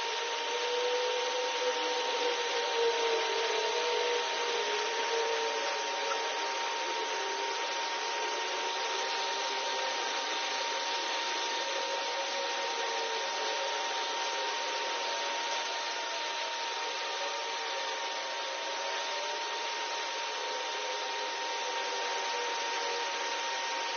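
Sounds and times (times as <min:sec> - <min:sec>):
laser cleaning hiss and whine: 0:00.0 - 0:23.9.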